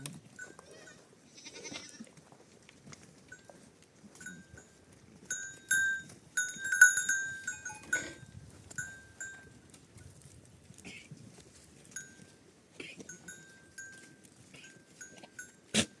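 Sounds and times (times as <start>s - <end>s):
animal bells clinking: 0.0s - 1.1s, 3.2s - 10.4s, 11.6s - 16.0s.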